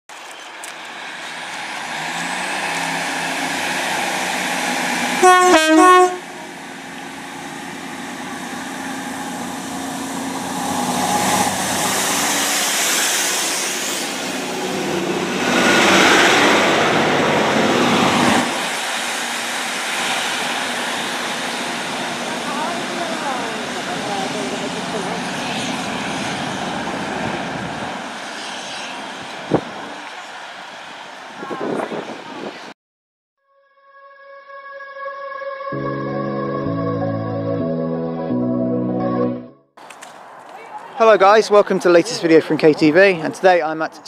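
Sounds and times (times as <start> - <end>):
diesel train passing: 0.3 - 32.7
train horn blasts: 5.2 - 6.5.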